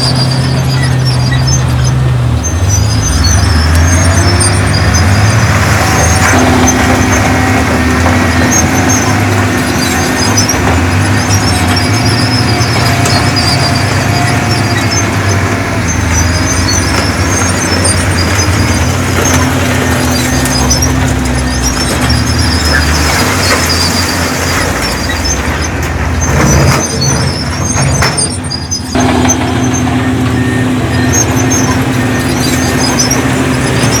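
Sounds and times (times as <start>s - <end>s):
heavy diesel machinery running: 0.0s - 34.0s.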